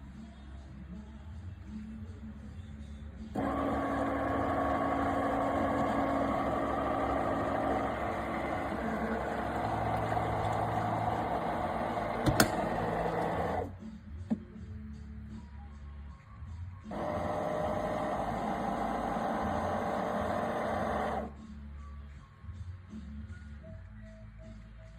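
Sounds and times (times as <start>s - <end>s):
coffee grinder running: 3.4s - 13.7s, 16.9s - 21.3s.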